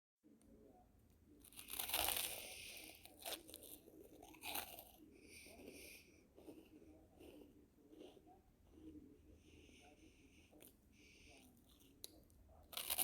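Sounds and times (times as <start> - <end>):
crunchy chewing: 1.4 - 8.2, 10.6 - 13.0
sharp cracks of crust: 1.5 - 4.8, 12.0 - 13.0
crunching bite into bread: 1.5 - 5.0, 12.7 - 13.0.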